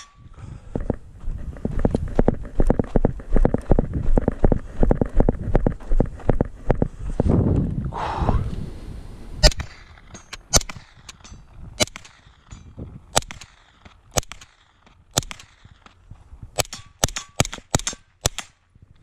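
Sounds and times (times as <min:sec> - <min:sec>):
suppressed gunshots: 0:09.4 - 0:12.5, 0:13.1 - 0:15.9, 0:16.6 - 0:18.6.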